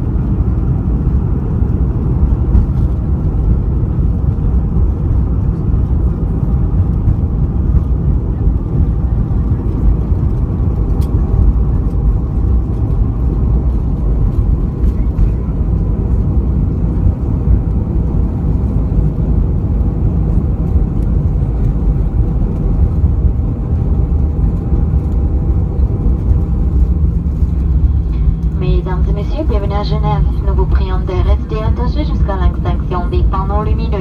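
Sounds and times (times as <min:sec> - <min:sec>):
airplane cabin rumble: 0:00.0 - 0:34.0
faint steady tones: 0:27.1 - 0:34.0.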